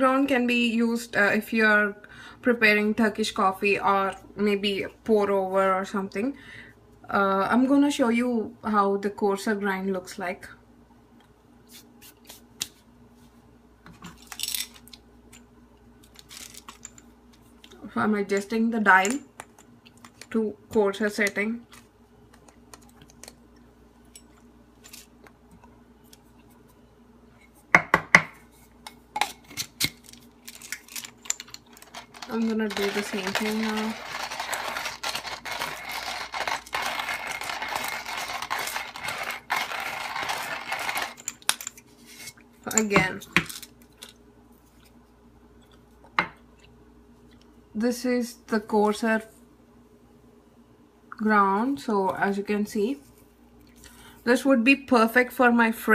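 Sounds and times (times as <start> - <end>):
coffee grinder crushing beans: 29.6 - 41.5.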